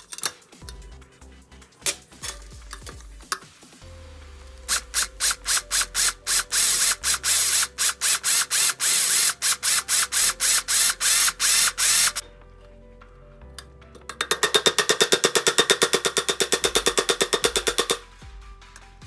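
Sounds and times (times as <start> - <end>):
hand tool rasping strokes: 4.7 - 12.2, 14.3 - 18.0.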